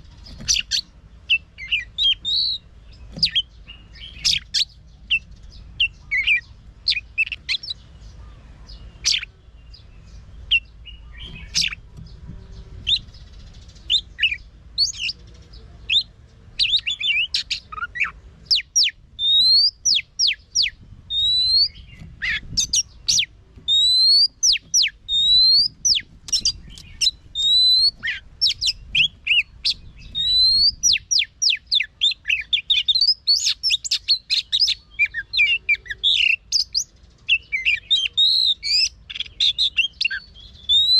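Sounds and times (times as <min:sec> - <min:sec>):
bird singing chirps and whistles: 0:00.2 - 0:07.9, 0:08.7 - 0:11.8, 0:12.5 - 0:15.2, 0:15.8 - 0:40.9
fast chattering bird notes: 0:10.5 - 0:15.4.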